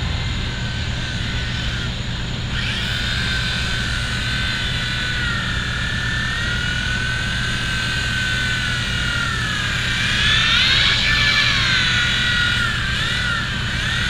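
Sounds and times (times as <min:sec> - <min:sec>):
steady low rumble: 0:00.0 - 0:07.2
toy helicopter rotor whining: 0:00.0 - 0:14.0.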